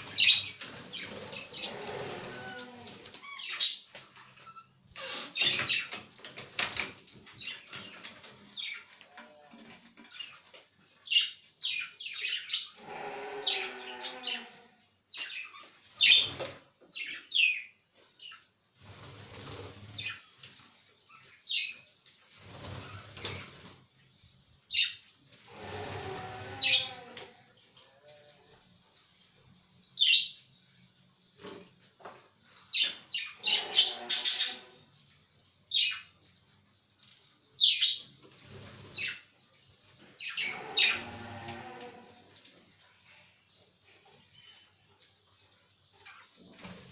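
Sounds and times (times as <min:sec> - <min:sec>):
budgerigars chirping and chattering: 0:00.0 - 0:02.2, 0:03.2 - 0:09.0, 0:15.1 - 0:18.4, 0:31.4 - 0:34.8, 0:35.7 - 0:36.1, 0:37.6 - 0:39.3, 0:40.0 - 0:41.1.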